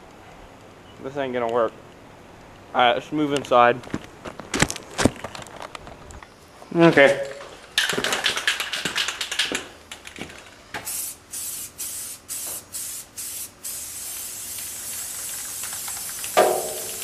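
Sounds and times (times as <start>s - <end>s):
spray can ball rattling: 7.8s - 10.2s, 10.9s - 17.0s
spray can hissing: 10.8s - 17.0s.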